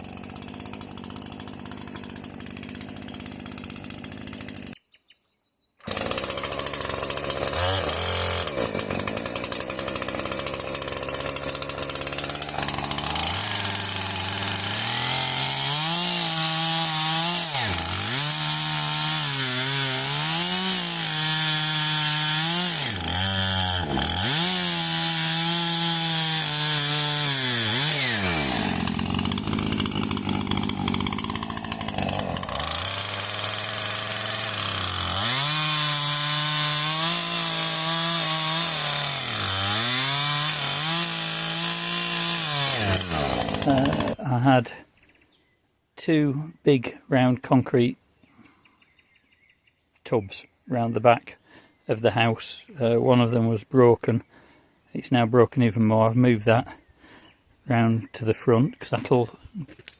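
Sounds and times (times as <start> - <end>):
chainsaw revving and bogging: 0.0 - 4.8, 5.8 - 44.4.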